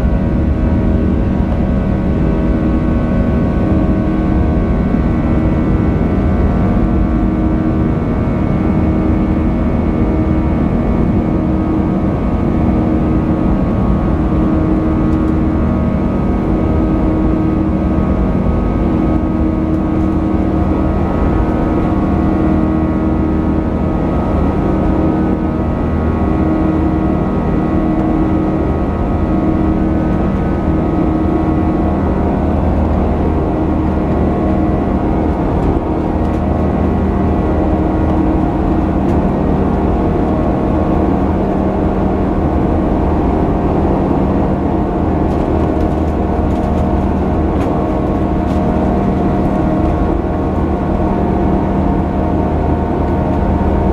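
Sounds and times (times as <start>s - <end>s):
jet engines rumbling in cabin: 0.0s - 53.9s.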